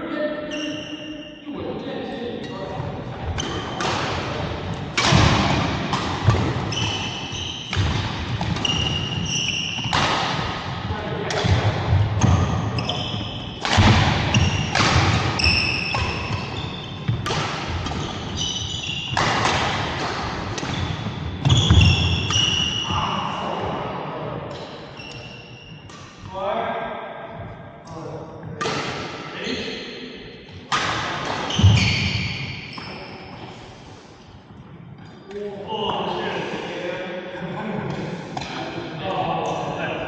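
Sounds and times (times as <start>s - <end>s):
sneaker squeaks: 0.4s - 1.5s, 2.4s - 4.1s, 5.0s - 10.7s, 12.2s - 23.8s, 24.5s - 26.3s, 31.2s - 33.6s
racket strikes: 3.3s - 12.9s, 13.6s - 23.0s, 28.6s - 29.3s, 30.6s - 32.9s.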